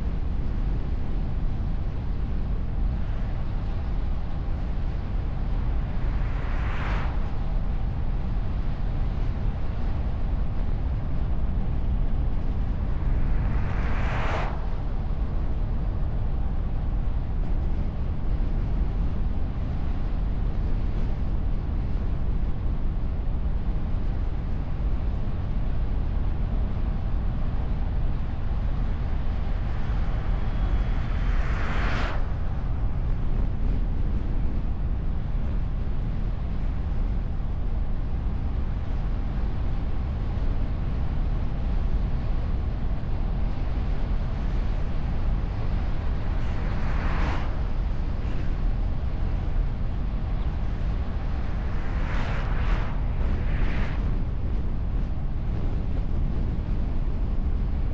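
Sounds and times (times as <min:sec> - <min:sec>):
wind and road rumble of car: 0:00.0 - 0:57.9
passing vehicle whooshes: 0:05.7 - 0:09.2, 0:12.4 - 0:16.7, 0:28.6 - 0:34.6, 0:44.0 - 0:56.0.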